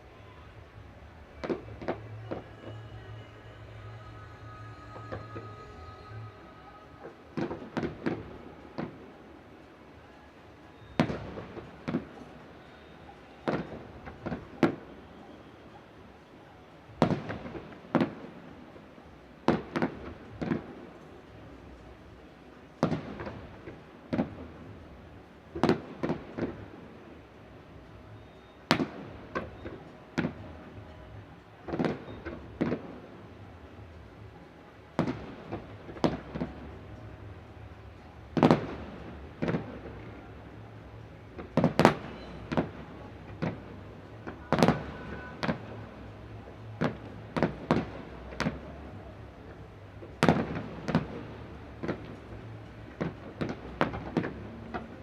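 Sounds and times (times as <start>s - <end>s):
distant fireworks bangs: 31.7s - 33.2s, 38.3s - 40.5s, 41.2s - 48.7s, 50.0s - 55.0s.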